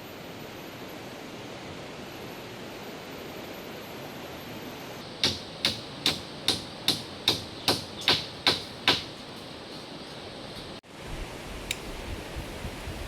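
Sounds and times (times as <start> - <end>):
steady hiss: 0.0 - 13.0
hammer knocking: 5.2 - 9.8.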